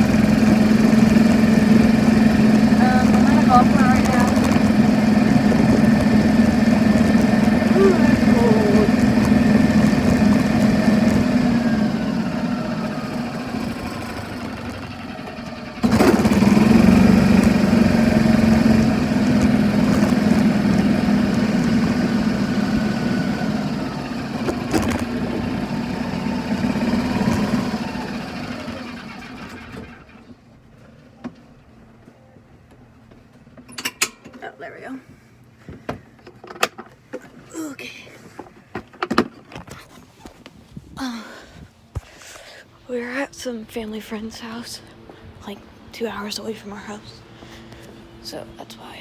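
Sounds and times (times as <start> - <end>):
golf cart droning: 0.0 - 30.3, 42.0 - 48.9.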